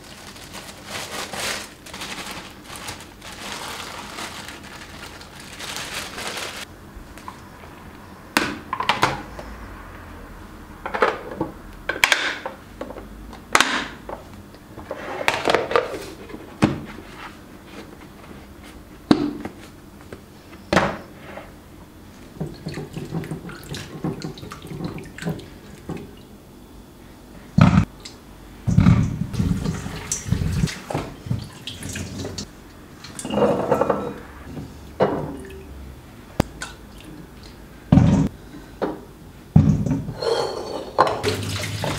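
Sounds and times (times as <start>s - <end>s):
water: 22.4s - 26.2s, 29.4s - 33.4s, 36.5s - 37.6s, 41.2s - 41.9s.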